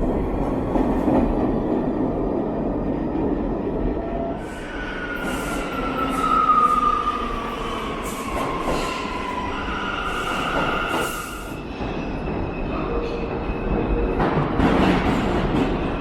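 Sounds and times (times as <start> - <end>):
subway train rumbling: 0.0 - 16.0
wheels squealing on rails: 4.3 - 14.2.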